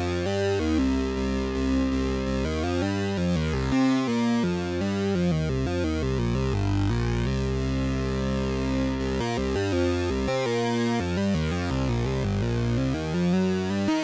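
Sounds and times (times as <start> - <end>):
low synth bass line: 5.2 - 13.4.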